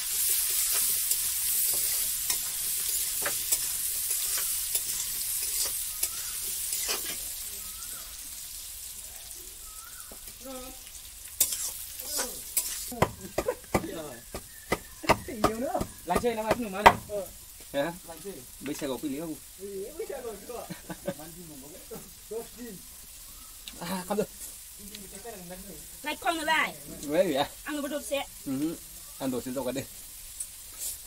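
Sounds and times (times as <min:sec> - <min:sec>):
potatoes sizzling in oil: 0:00.0 - 0:31.0
metal spatula scraping pan: 0:00.6 - 0:07.3, 0:11.4 - 0:13.0.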